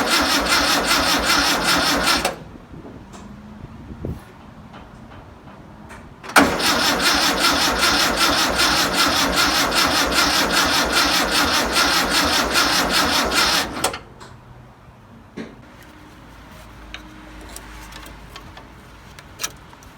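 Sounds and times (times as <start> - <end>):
starter cranking engine: 0.0 - 2.4, 6.3 - 14.0.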